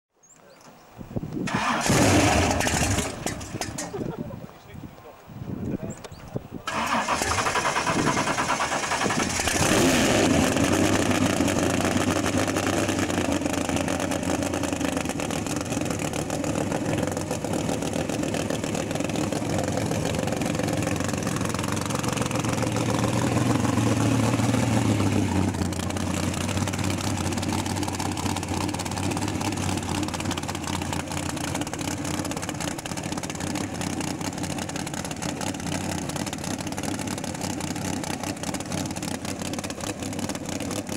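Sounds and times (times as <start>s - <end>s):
engine starting and idling: 1.4s - 4.2s, 6.6s - 40.9s.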